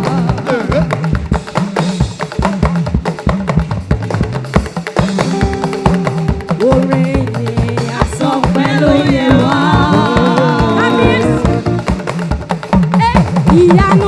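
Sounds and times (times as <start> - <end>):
held keyboard notes: 0.0 - 1.8, 5.1 - 12.3
drums and wood-block strikes: 0.0 - 14.0
bass line: 5.2 - 12.2.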